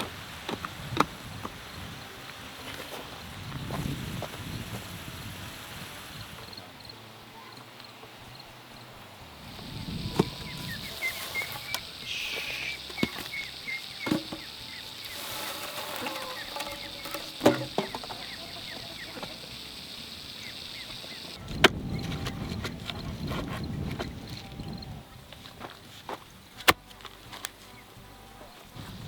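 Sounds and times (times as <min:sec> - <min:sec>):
birds chirping: 0:08.3 - 0:22.2
scuffing and rustling: 0:10.2 - 0:18.1.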